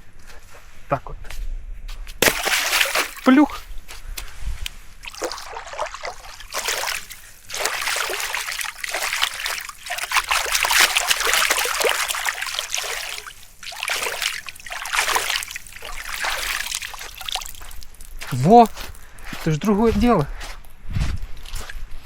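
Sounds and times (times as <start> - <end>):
water splashing and sloshing: 2.2 - 3.7, 4.3 - 19.6.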